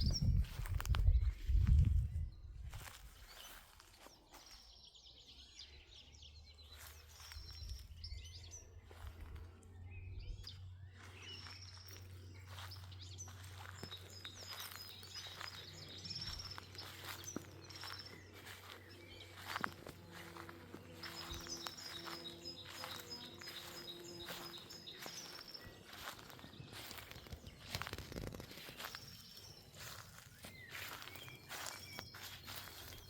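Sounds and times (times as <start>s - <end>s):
songbirds chirping: 0.0s - 33.0s.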